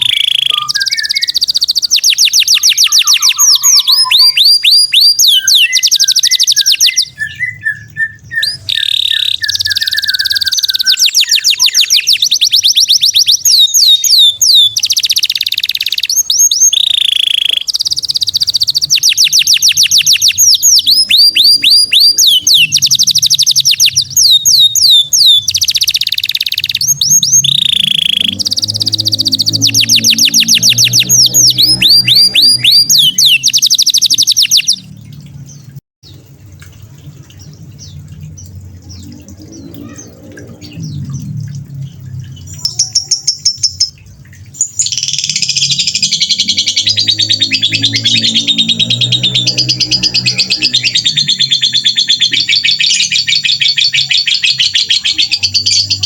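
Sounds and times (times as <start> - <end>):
bird warbling phrase: 0.0 - 1.4, 2.4 - 4.7, 39.4 - 40.8
songbird rattling trills: 0.0 - 7.2.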